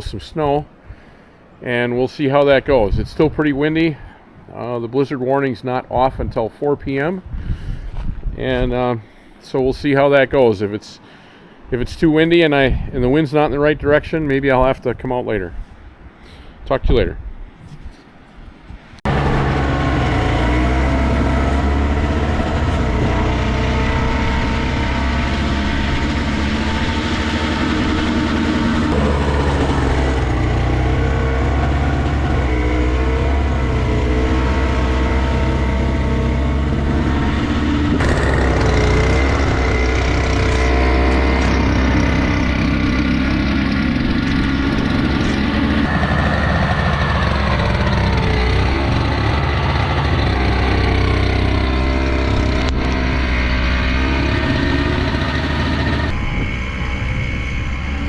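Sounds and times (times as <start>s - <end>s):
snowblower engine running: 19.1s - 58.0s.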